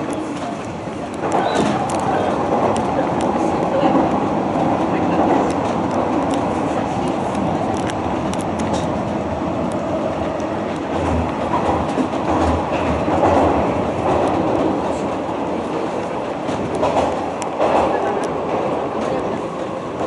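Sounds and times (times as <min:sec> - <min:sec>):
train wheels rumbling on rail: 0:00.0 - 0:20.0
wheels thumping over rail joints: 0:10.3 - 0:15.1.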